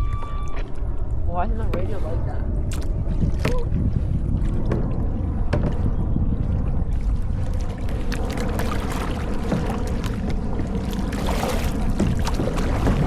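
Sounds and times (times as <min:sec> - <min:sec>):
low rumble: 0:00.0 - 0:13.0
kayak paddle splashing: 0:02.6 - 0:13.0.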